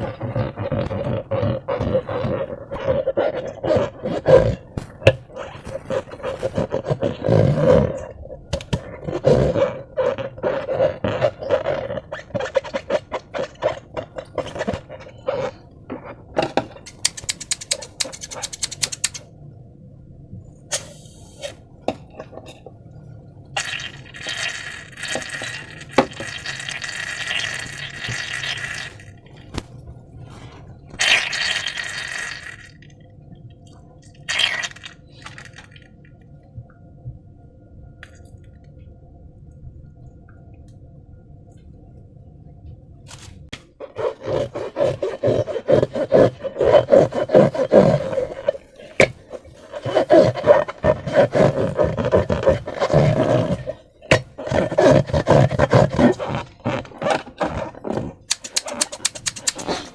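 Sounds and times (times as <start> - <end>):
slime squishing and squelching: 0.0 - 16.3, 34.2 - 35.8, 43.8 - 59.9.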